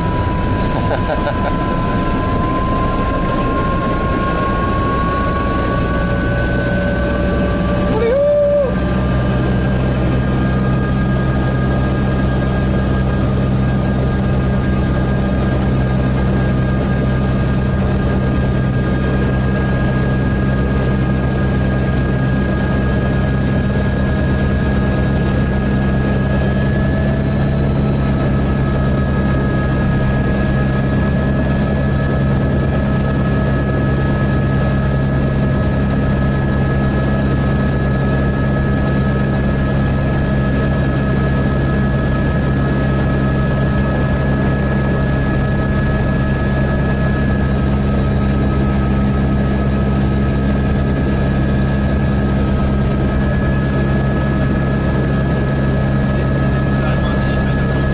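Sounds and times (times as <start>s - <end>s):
helicopter engine high whine: 0.0s - 57.9s
helicopter rotor drone: 0.0s - 57.9s.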